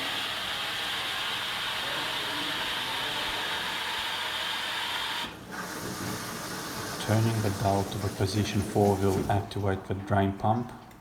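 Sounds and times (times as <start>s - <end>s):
water hissing through valve: 3.8s - 9.4s.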